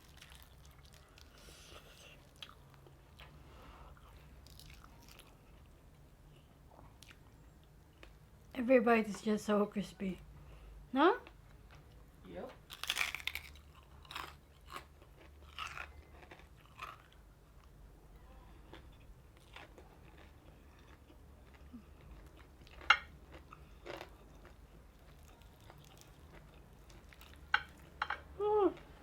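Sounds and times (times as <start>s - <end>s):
person chewing crunchy food: 0.0s - 5.8s, 12.7s - 17.8s, 18.6s - 29.0s.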